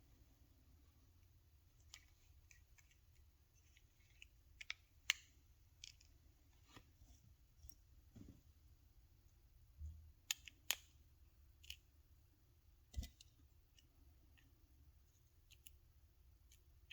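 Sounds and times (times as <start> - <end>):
small plastic parts clicking: 1.8 - 6.1, 10.2 - 11.0, 15.4 - 15.8.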